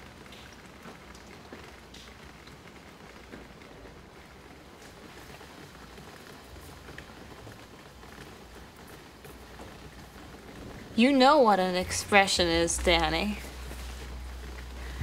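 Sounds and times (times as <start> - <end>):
light drips: 0.0 - 11.0
rain hiss: 0.0 - 15.0
low steady rumble: 10.4 - 15.0.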